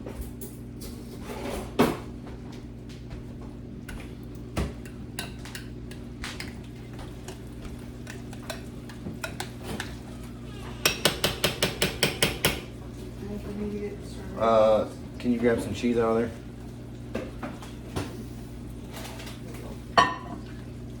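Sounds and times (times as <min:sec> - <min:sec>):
spoon stirring beans in a dish: 0:03.9 - 0:12.7
spoon tapping against dish: 0:07.2 - 0:10.0, 0:10.8 - 0:12.7.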